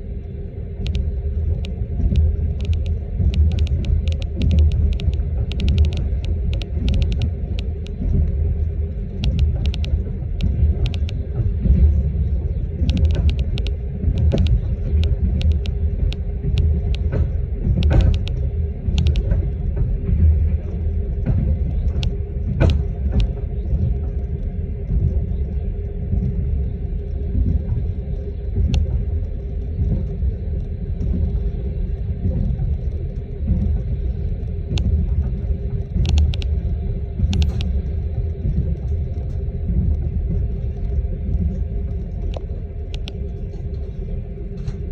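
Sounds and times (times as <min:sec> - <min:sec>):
low motor rumble: 0:00.0 - 0:44.9
sharp clicks: 0:00.8 - 0:08.0, 0:09.2 - 0:11.2, 0:12.8 - 0:17.2, 0:17.8 - 0:19.3, 0:36.0 - 0:36.5, 0:37.3 - 0:37.7, 0:42.3 - 0:43.2.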